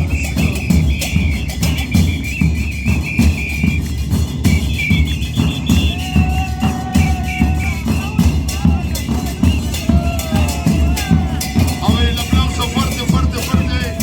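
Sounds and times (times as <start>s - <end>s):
whistle trilling: 0.0s - 10.7s
percussion band bass drums: 0.0s - 14.0s.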